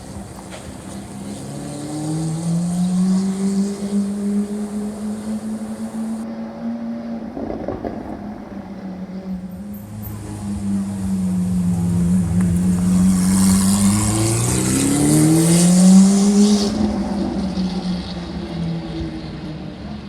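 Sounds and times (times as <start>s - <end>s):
sports car engine revving: 0.0s - 6.2s, 10.0s - 18.4s.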